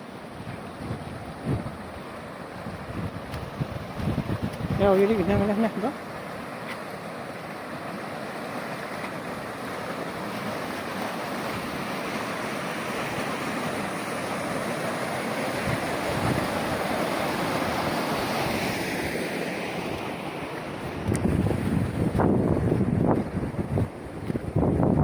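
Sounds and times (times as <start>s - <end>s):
floodwater rushing: 0.0s - 25.0s
wind buffeting microphone: 0.4s - 2.0s, 2.6s - 5.6s, 15.5s - 18.7s, 20.7s - 25.0s.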